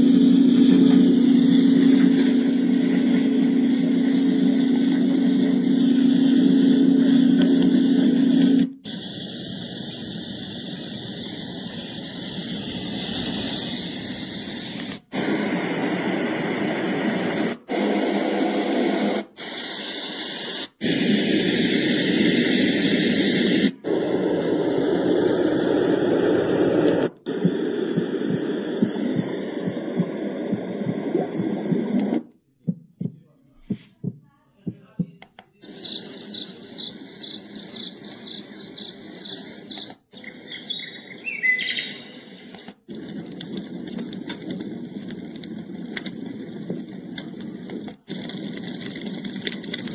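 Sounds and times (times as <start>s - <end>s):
hissing white noise: 5.4s - 32.2s
low heartbeat-like pulsing: 27.3s - 35.2s
chirps: 35.6s - 42.8s.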